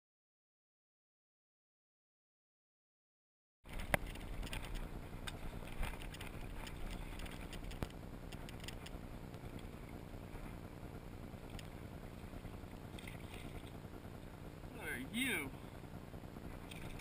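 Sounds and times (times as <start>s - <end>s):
sharp clicks and knocks: 3.7s - 9.7s
light water splashing: 3.7s - 14.4s, 16.5s - 17.0s
water and wind rumble: 3.7s - 17.0s.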